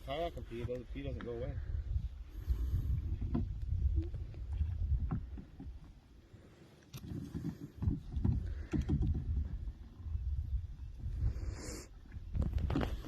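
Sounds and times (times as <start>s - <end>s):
wind rumble on microphone: 0.0s - 6.0s, 7.0s - 13.0s
kayak hull and paddle knocking: 3.1s - 6.1s, 7.0s - 10.0s.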